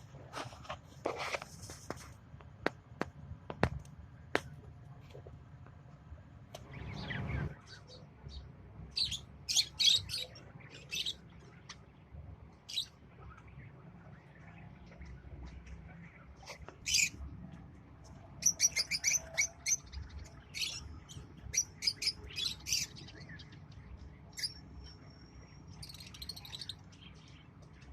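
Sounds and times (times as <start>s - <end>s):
lovebirds chirping shrilly: 8.9s - 11.2s, 16.4s - 17.2s, 18.4s - 23.5s, 24.3s - 27.2s.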